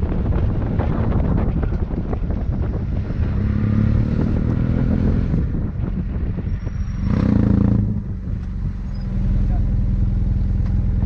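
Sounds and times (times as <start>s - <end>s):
motorcycle engine revving: 2.9s - 5.7s, 6.8s - 8.2s.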